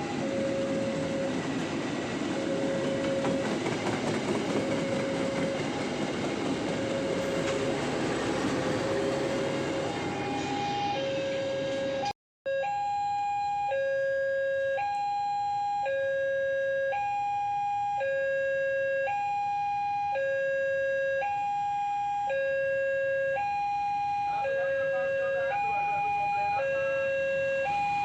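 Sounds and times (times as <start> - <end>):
passing train rumble: 0.0 - 12.1
two-tone crossing alarm: 0.0 - 28.0.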